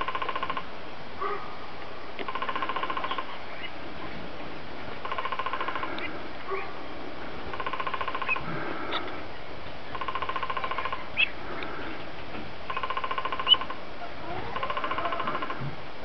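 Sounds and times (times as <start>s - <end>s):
bird trilling: 2.3s - 3.8s, 5.0s - 6.6s, 7.5s - 9.1s, 9.9s - 11.4s, 12.7s - 15.6s.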